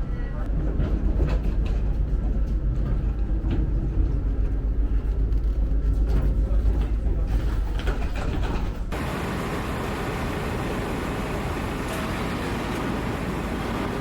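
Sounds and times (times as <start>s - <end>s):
vehicle rumble from inside: 8.9s - 14.0s.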